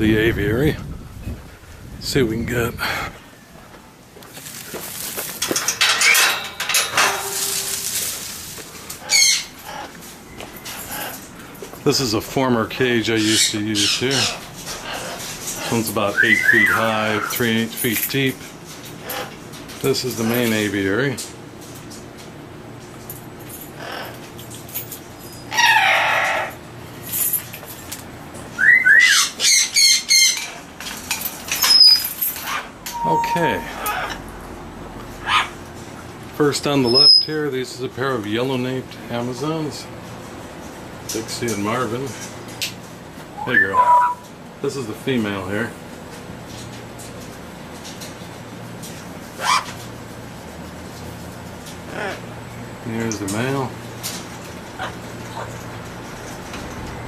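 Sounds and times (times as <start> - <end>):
wire cage rattling: 4.8 - 9.8, 30.2 - 33.0
parrot squawk: 9.0 - 10.0, 13.2 - 17.4, 19.0 - 19.3, 23.8 - 24.2, 25.4 - 26.6, 28.6 - 30.7, 31.6 - 34.2, 35.2 - 35.6, 36.9 - 37.3, 43.3 - 44.3, 49.4 - 49.8, 51.9 - 52.2
parrot squawks and whistles: 16.1 - 17.4, 28.6 - 30.4, 31.6 - 34.2, 43.3 - 44.2.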